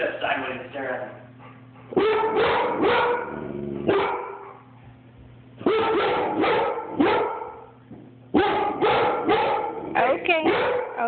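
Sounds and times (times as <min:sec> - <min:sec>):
dog barking: 0:01.9 - 0:04.6, 0:05.6 - 0:07.7, 0:08.3 - 0:11.0.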